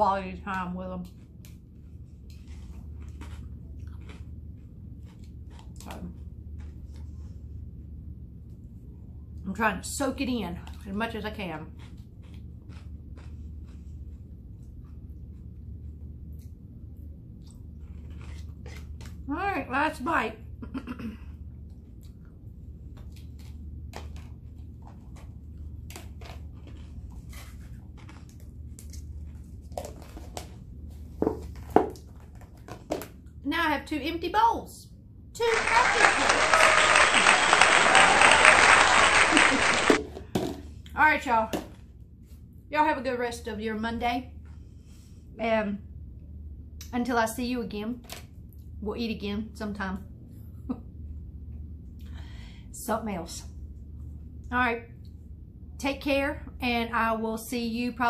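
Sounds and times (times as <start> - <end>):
low steady hum: 0.0 - 58.0
person chewing food: 1.0 - 7.5, 11.7 - 19.2, 21.4 - 30.8.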